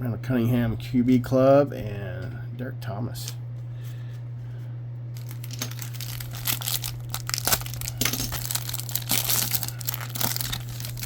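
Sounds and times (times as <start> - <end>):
wrapper crinkling and tearing: 5.2 - 11.0.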